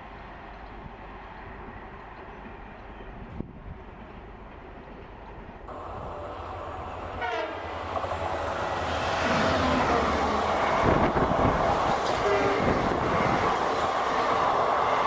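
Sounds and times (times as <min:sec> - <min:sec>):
train rushing past: 0:05.7 - 0:15.0
train horn blast: 0:06.9 - 0:07.9, 0:12.2 - 0:12.9.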